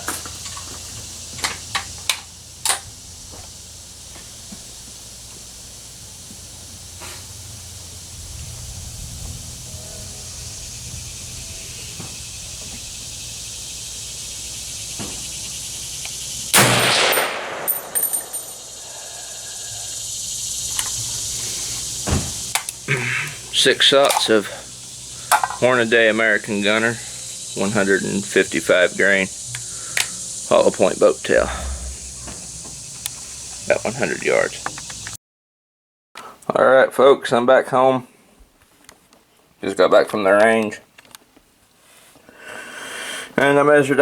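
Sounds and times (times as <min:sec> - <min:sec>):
background hiss: 0:00.0 - 0:35.2, 0:36.2 - 0:44.0
rifle shot: 0:16.5 - 0:18.3.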